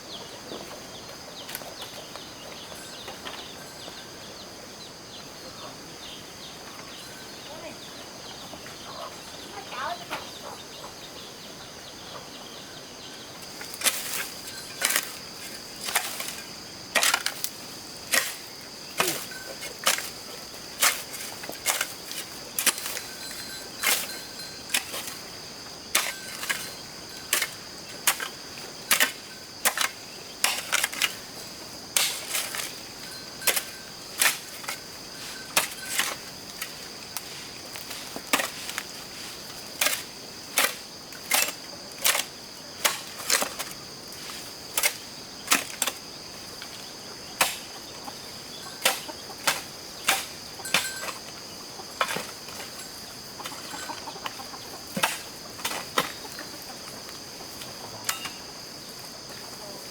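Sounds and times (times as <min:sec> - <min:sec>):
digging tool striking ground: 0:13.5 - 0:46.0, 0:47.4 - 0:47.9, 0:48.8 - 0:51.3, 0:52.0 - 0:52.8, 0:54.9 - 0:56.3, 0:58.0 - 0:58.4.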